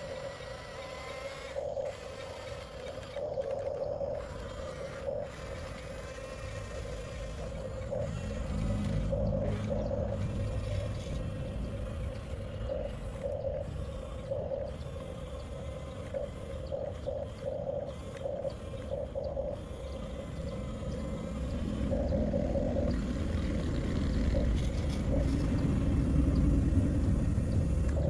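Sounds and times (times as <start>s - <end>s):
electric motors whining in pulses: 0.0s - 28.0s
low rumble: 16.1s - 28.0s.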